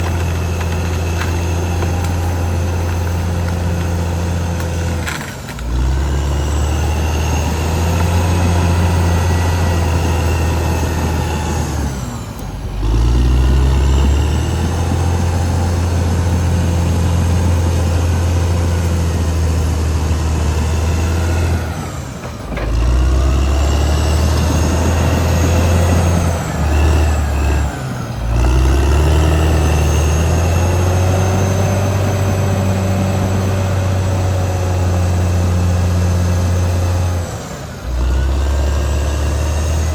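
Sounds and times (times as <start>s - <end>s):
bulldozer diesel engine under load: 0.0s - 39.9s
high turbo whine: 0.0s - 39.9s.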